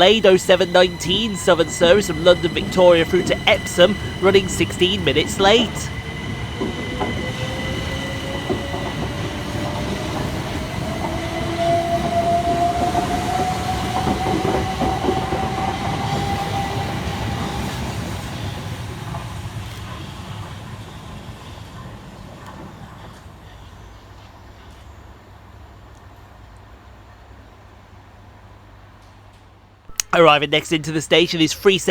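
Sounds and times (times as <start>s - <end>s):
electric train traction whine: 0.0s - 22.2s.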